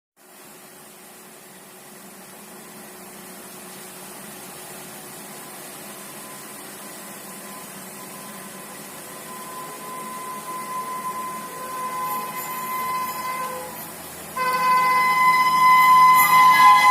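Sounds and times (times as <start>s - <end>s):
high steady tone: 5.8s - 16.9s
train rushing noise: 8.9s - 16.9s.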